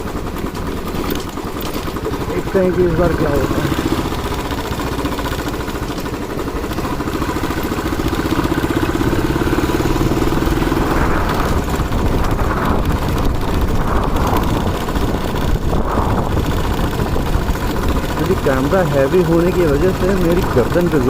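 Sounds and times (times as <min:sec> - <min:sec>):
motorcycle engine running: 0:00.0 - 0:21.0
wind rushing over microphone: 0:09.0 - 0:18.2.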